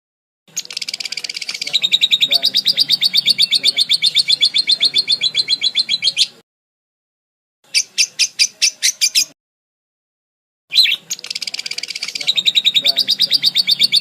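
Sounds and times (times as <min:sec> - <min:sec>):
parakeet chirping: 0:00.5 - 0:06.4, 0:07.7 - 0:09.3, 0:10.7 - 0:14.0.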